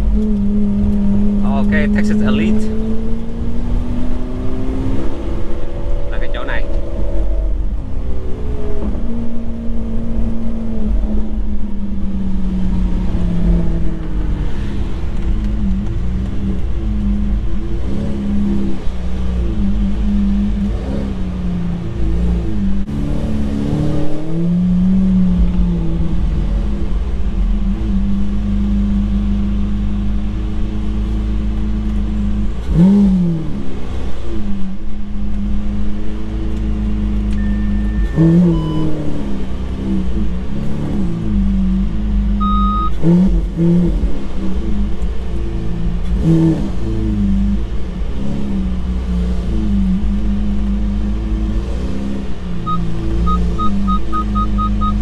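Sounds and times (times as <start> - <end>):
car engine rumbling: 0.0 - 55.0.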